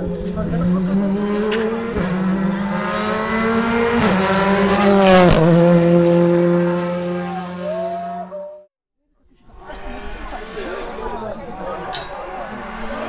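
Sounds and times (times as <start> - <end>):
car engine accelerating: 0.0 - 8.7.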